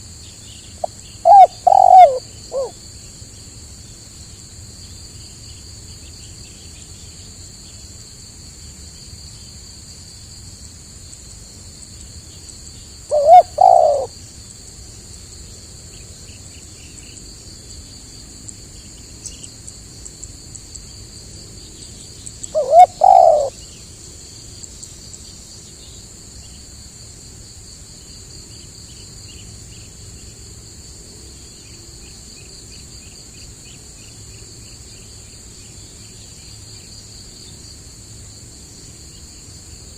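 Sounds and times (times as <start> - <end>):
high-pitched insect drone: 0.8 - 3.2, 22.2 - 23.7
dove cooing: 1.2 - 2.8, 13.1 - 14.1, 22.5 - 23.5.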